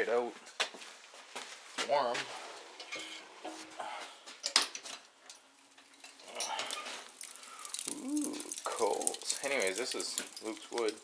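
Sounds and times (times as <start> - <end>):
clicks and metal knocks: 2.8 - 3.7.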